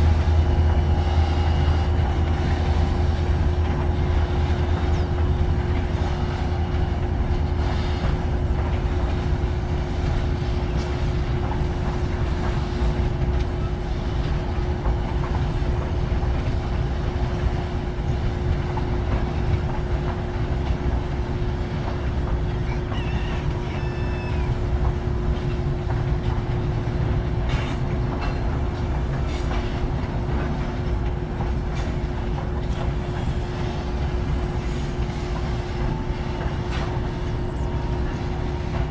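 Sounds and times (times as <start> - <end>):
freight train rumbling past: 0.0 - 38.9
train wheel squeal: 0.0 - 38.9
wheels clicking over rail joints: 24.8 - 33.4.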